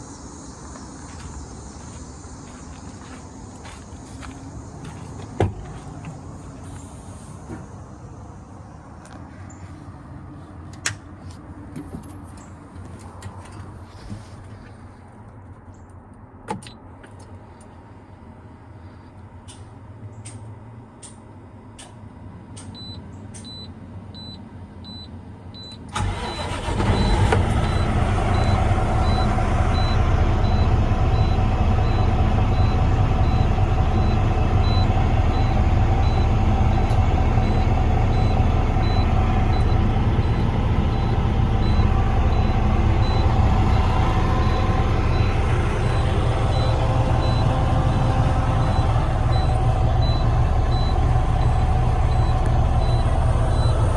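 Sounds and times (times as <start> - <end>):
truck diesel engine idling: 22.8 - 53.9.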